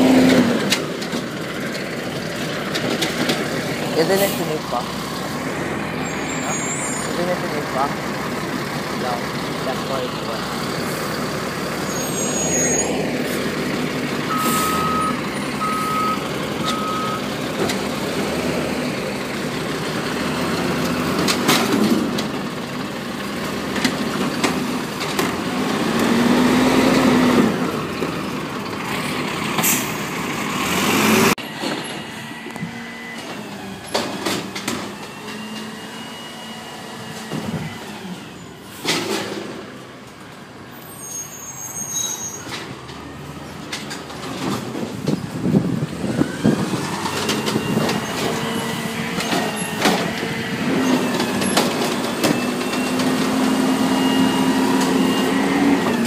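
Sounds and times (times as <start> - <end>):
reversing beeps: 14.3 - 17.2, 53.7 - 55.7
garbage truck engine running: 43.4 - 56.0.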